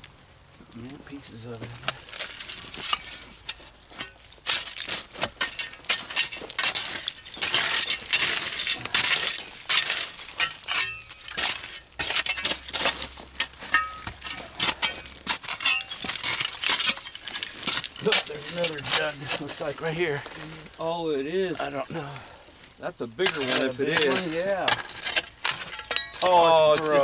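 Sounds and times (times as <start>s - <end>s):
glass and pottery shards clinking: 1.5s - 27.0s.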